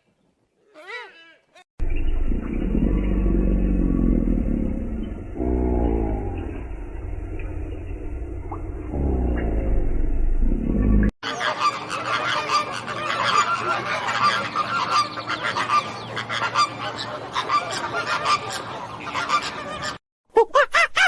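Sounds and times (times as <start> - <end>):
geese honking: 11.3 - 20.0.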